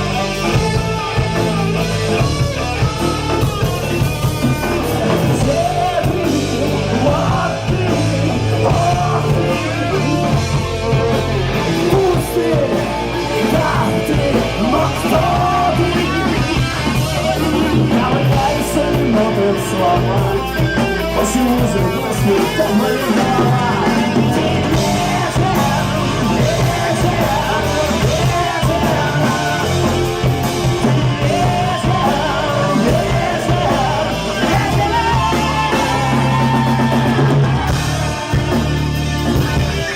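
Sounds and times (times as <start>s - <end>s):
electric guitar: 0.0s - 39.9s
rock band playing live: 0.0s - 39.9s.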